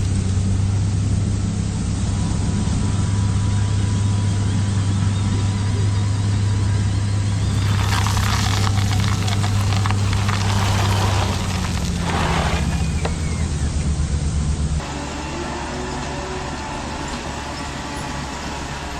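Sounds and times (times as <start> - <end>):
low motor hum: 0.0 - 18.9
dense crackling with clicks: 7.5 - 13.2.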